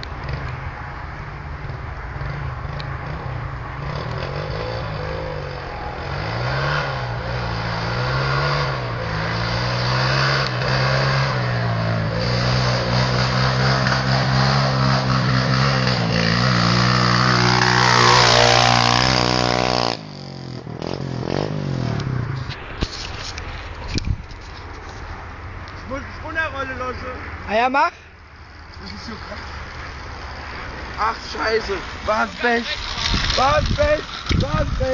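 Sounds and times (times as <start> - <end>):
pit bike engine revving: 1.6 - 22.3.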